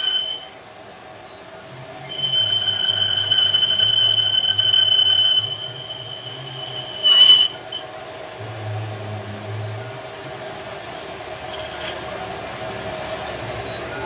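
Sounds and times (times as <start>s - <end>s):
high-pitched metallic squeal: 0.0s - 0.6s, 2.0s - 8.0s
low machine hum: 0.0s - 14.0s.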